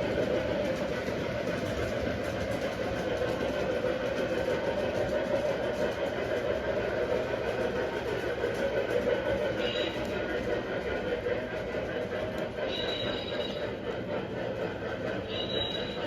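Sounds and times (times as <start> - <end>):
model train rumbling on track: 0.0 - 16.0.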